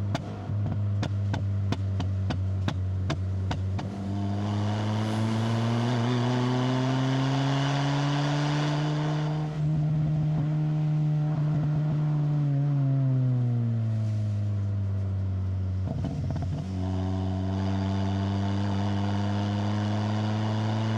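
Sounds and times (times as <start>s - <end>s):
car engine revving under load: 0.0s - 20.9s.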